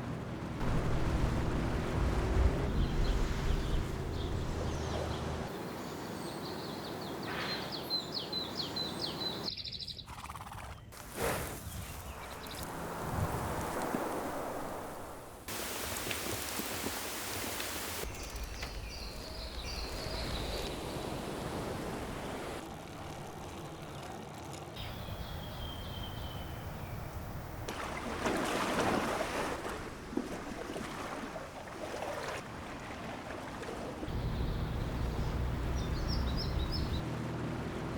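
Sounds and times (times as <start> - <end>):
surf rushing: 0.6 - 6.0, 12.3 - 18.1, 19.7 - 22.6
waves washing in: 0.6 - 7.8, 11.0 - 18.1, 19.6 - 22.7, 25.9 - 37.0
wind on microphone: 11.5 - 15.4.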